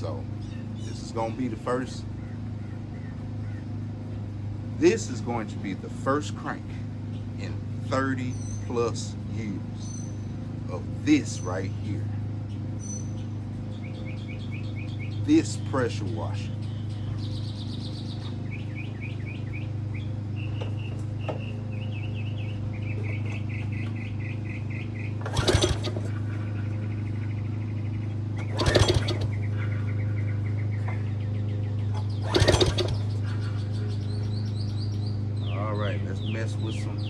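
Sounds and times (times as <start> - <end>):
birds chirping: 0.0 - 37.0
engine cranking without starting: 22.4 - 34.9.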